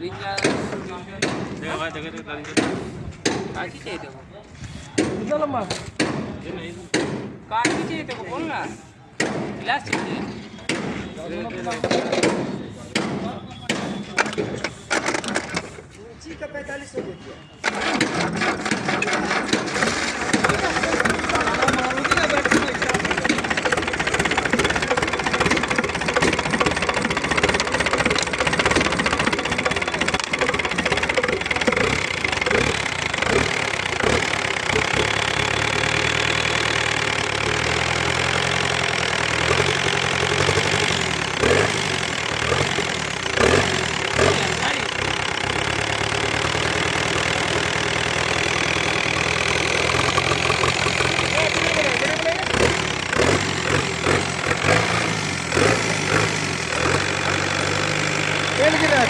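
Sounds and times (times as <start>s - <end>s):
diesel engine clattering idle: 17.6s - 59.0s.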